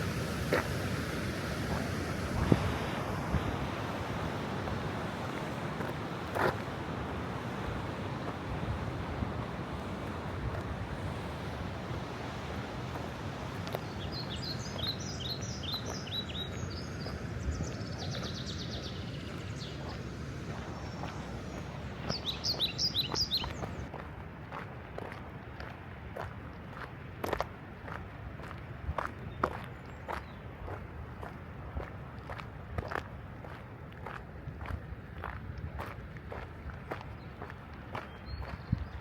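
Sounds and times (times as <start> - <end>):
waterfall rushing: 0.0 - 17.2
songbird singing and trilling: 13.7 - 20.0, 20.6 - 23.9, 38.0 - 39.0.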